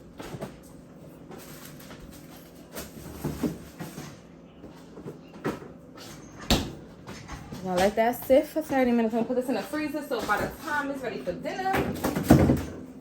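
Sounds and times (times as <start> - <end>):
fridge door: 11.7 - 12.9.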